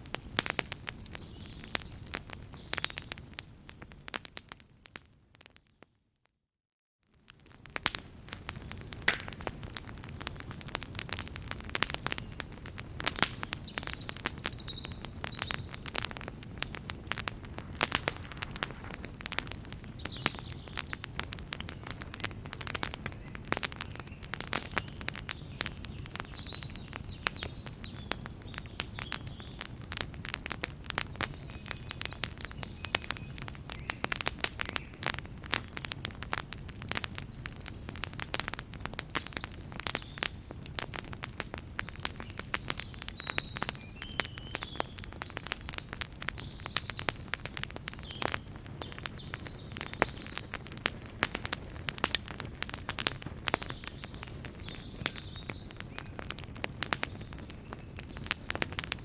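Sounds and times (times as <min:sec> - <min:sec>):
campfire crackling: 0:00.0 - 0:05.5, 0:07.1 - 0:59.0.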